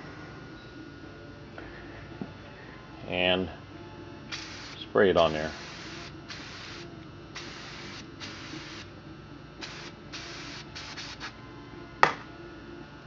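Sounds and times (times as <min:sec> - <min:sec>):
aerosol can spraying hisses: 0:04.3 - 0:04.8, 0:05.5 - 0:08.9, 0:09.6 - 0:11.3.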